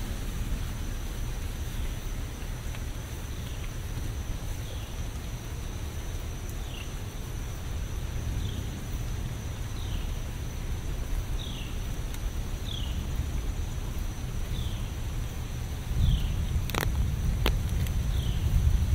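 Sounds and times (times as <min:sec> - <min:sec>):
low rumble: 0:00.0 - 0:18.9
steady rain hiss: 0:00.0 - 0:18.9
bird chirping: 0:11.4 - 0:11.9, 0:12.6 - 0:13.1, 0:14.4 - 0:15.0.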